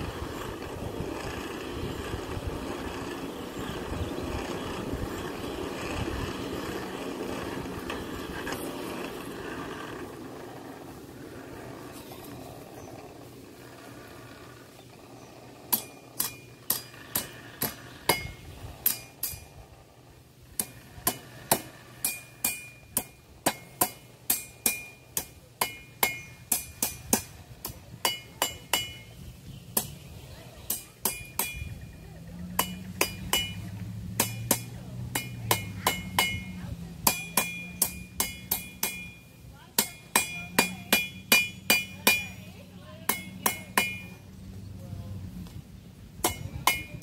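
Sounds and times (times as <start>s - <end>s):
hammer striking iron on anvil: 15.7s - 19.4s, 20.6s - 29.1s, 30.7s - 31.8s, 32.5s - 44.2s, 46.2s - 47.0s.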